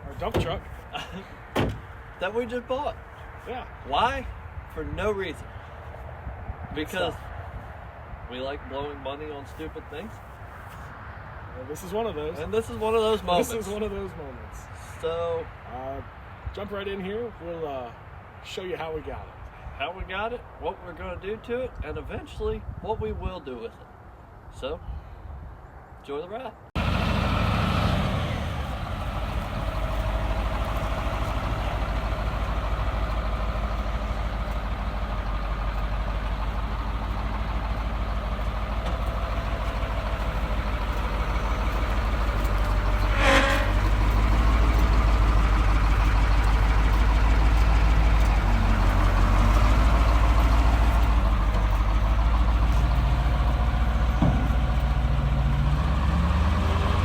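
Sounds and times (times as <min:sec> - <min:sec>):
heavy truck engine running: 0:26.8 - 0:57.0.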